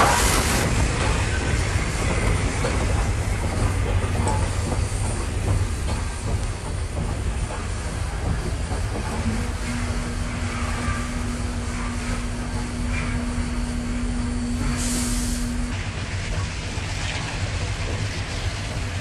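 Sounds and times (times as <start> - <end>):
loud hiss: 0.0 - 2.5, 9.6 - 15.8
train rumble on rails: 0.0 - 19.0.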